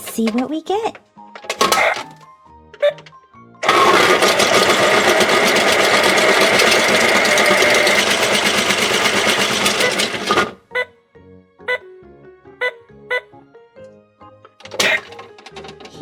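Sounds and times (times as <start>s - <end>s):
toy washing machine whirring rattle: 1.3s - 2.2s, 2.8s - 10.6s, 14.6s - 16.0s.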